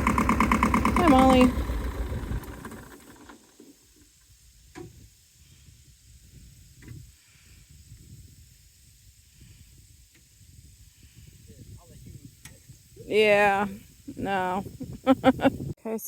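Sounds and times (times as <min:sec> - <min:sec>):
tractor engine running: 0:00.0 - 0:04.2.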